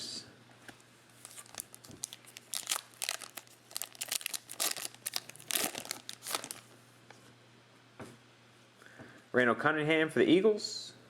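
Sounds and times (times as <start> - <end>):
plastic wrapper crinkling and tearing: 1.2 - 6.7.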